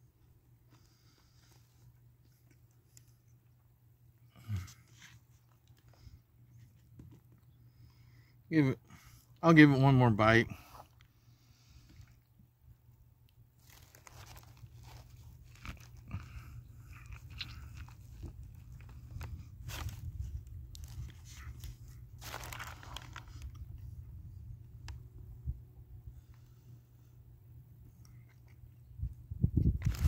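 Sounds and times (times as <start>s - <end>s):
steady low hum: 0.0s - 30.0s
crunchy bites and chewing: 13.6s - 23.9s, 28.0s - 30.0s.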